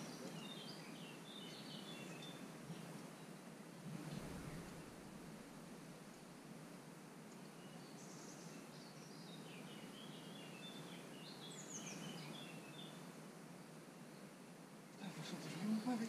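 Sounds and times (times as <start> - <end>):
small bird chirping: 0.0 - 3.4, 7.2 - 13.2.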